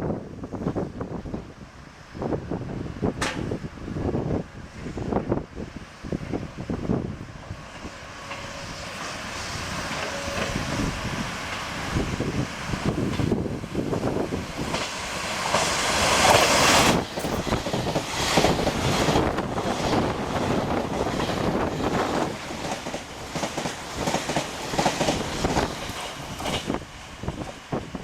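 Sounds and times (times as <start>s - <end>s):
express train passing: 0.0s - 28.0s.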